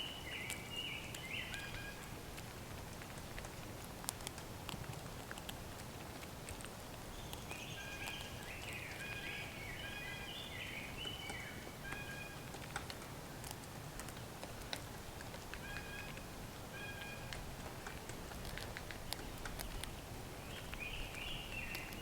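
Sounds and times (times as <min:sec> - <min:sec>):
light clicks and taps: 0:11.0 - 0:16.3, 0:17.0 - 0:22.0.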